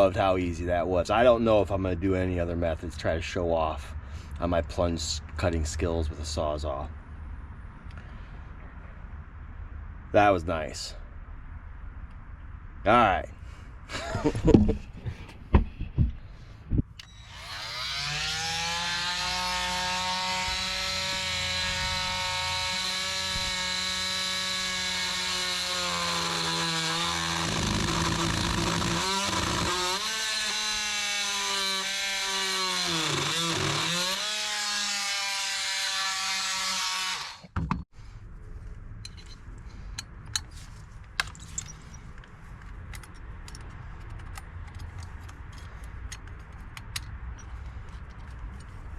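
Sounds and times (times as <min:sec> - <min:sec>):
oscillating multi-tool cutting wood: 0:17.0 - 0:37.6.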